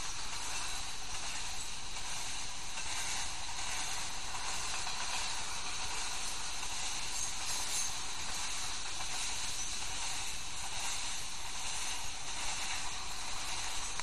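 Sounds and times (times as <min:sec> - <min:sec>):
freight train wheels hissing on rails: 0:00.0 - 0:14.0.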